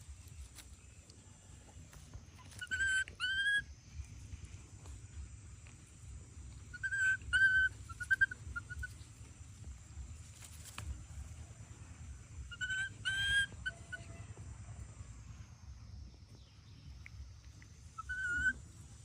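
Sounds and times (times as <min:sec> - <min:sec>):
baby monkey crying: 0:02.4 - 0:03.6, 0:06.7 - 0:09.0, 0:12.5 - 0:14.1, 0:18.0 - 0:18.6.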